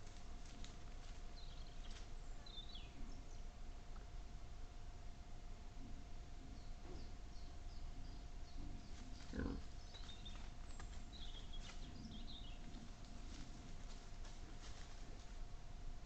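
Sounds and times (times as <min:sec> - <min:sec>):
wild boar grunting: 0:08.0 - 0:09.8.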